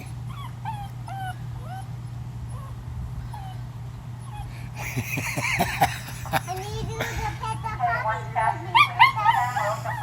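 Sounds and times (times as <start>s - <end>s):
puppies whimpering: 0.0s - 4.9s, 8.7s - 10.0s.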